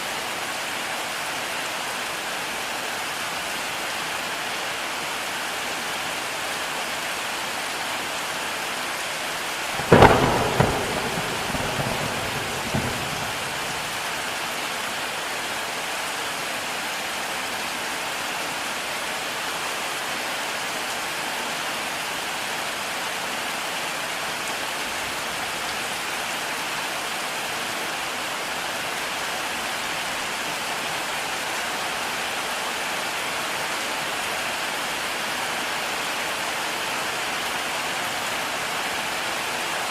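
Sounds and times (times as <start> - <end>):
heavy rain falling: 0.1 - 39.9
thunder clap and rumbles: 9.8 - 14.4.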